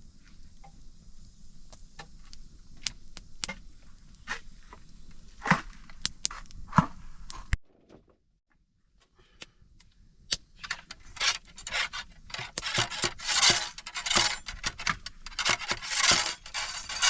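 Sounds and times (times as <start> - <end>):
hard objects scraping: 10.7 - 17.0.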